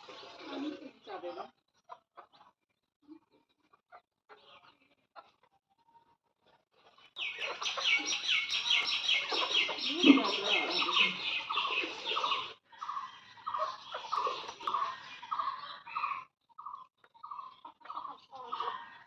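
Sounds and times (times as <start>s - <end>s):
shrill rapid bird calls: 7.1s - 19.0s
lower repeated bird call: 7.2s - 16.8s.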